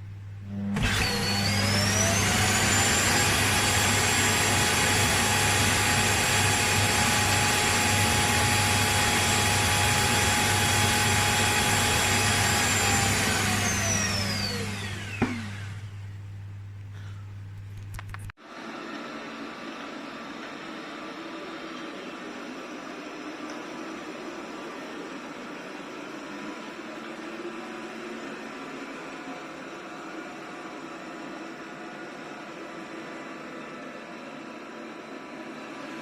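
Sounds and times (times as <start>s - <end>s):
suction motor whining: 0.5s - 16.0s.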